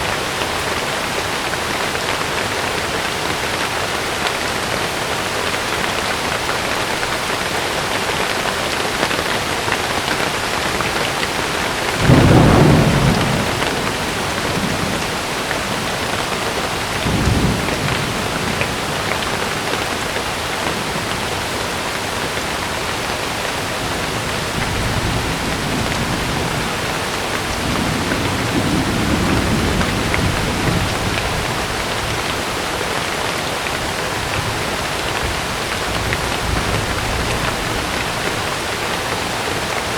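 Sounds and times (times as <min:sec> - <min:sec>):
heavy rain on a tent: 0:00.0 - 0:39.9
thunder rumbling: 0:10.7 - 0:21.4, 0:23.6 - 0:32.6, 0:33.8 - 0:38.8.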